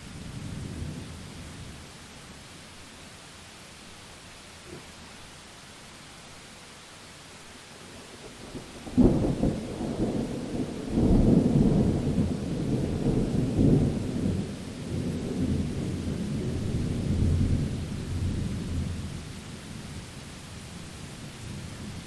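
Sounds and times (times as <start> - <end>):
thunder rumbling: 0.0 - 1.9, 8.5 - 19.2
steady rain hiss: 0.0 - 22.0.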